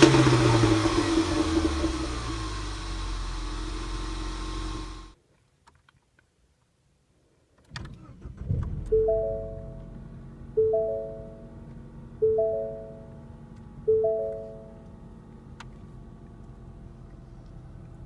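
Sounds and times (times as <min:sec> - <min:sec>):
car engine revving and idling: 0:00.0 - 0:05.2, 0:08.3 - 0:18.0
piano music: 0:08.9 - 0:09.9, 0:10.6 - 0:11.6, 0:12.2 - 0:13.2, 0:13.9 - 0:14.8.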